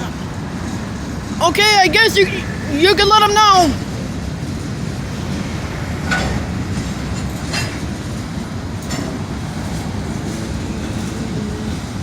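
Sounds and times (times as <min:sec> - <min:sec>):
freight train rumbling past: 0:00.0 - 0:12.0
train car clanks: 0:00.0 - 0:12.0.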